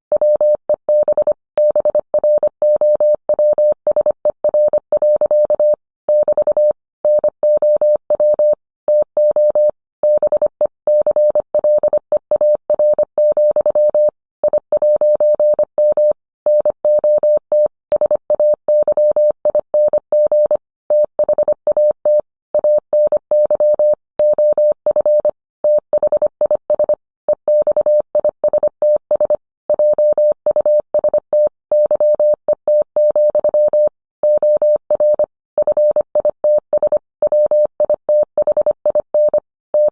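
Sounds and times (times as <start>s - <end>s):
morse code tone: 22.6s - 39.9s.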